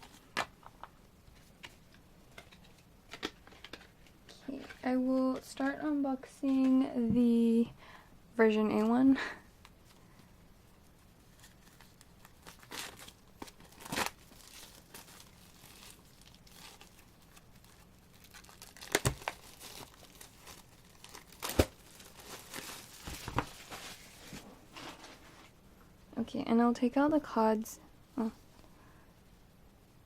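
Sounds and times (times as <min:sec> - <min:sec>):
plastic wrap tearing and crinkling: 0:11.3 - 0:24.2
sharp package clicks: 0:18.2 - 0:20.3.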